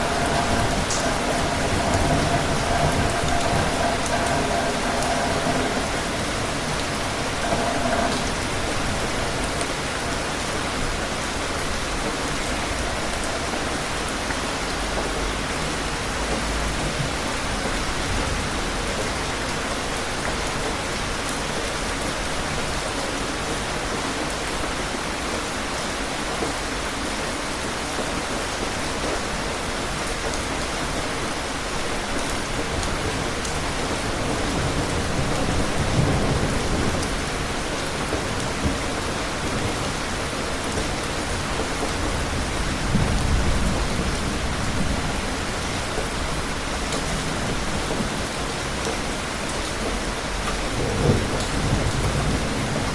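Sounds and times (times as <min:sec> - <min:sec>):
low thunder rumble: 0:00.0 - 0:19.6, 0:32.3 - 0:52.9
heavy rain pattering: 0:00.0 - 0:52.9.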